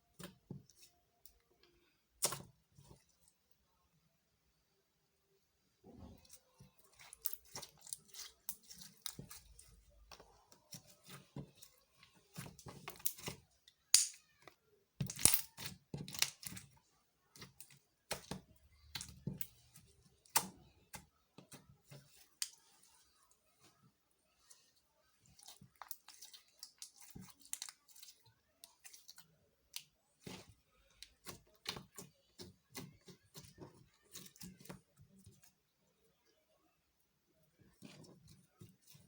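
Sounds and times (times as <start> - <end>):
sticky slime pops and crackles: 13.9 - 14.2, 15.0 - 16.6.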